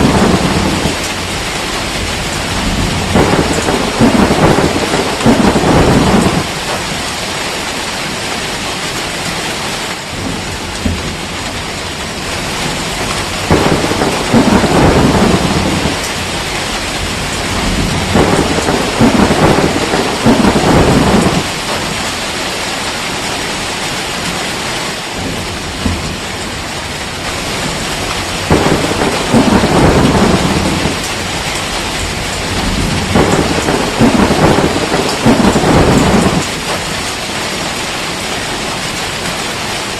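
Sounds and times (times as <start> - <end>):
rolling thunder: 0.0 - 7.2, 10.0 - 22.4, 25.1 - 37.2
steady rain: 0.0 - 39.9.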